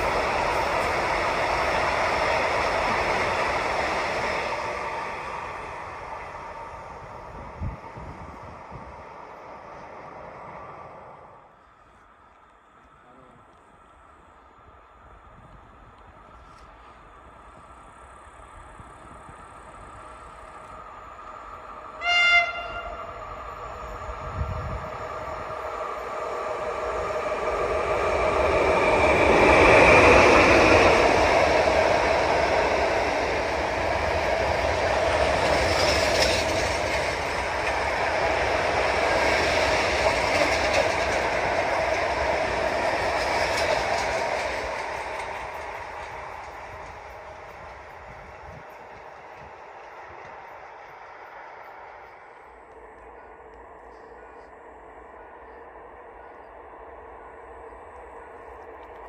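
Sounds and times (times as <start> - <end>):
train running noise: 0.0 - 59.0
train horn blast: 21.9 - 23.3.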